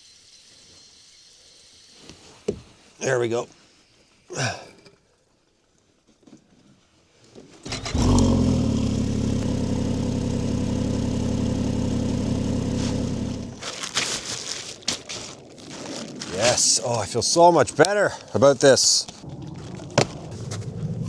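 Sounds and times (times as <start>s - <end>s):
snowmobile engine idling: 7.7s - 13.6s.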